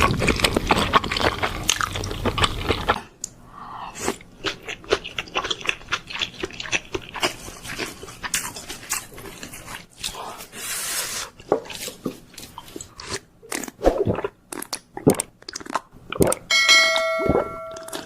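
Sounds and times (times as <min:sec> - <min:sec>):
wet chewing and lip smacks: 0:11.4 - 0:16.5
ringing tone: 0:16.5 - 0:18.0.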